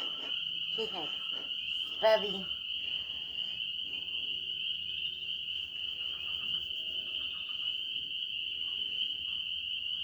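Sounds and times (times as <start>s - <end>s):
frogs peeping: 0.0s - 10.0s.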